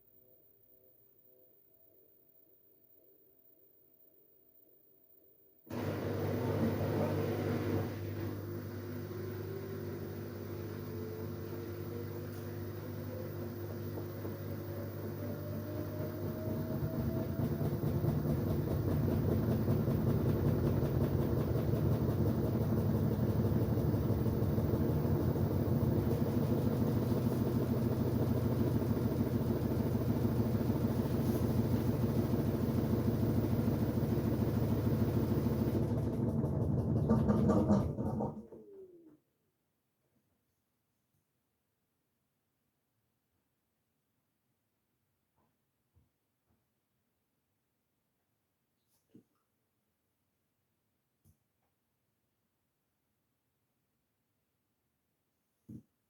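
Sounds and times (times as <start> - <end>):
washing machine motor whine: 5.7 - 38.9.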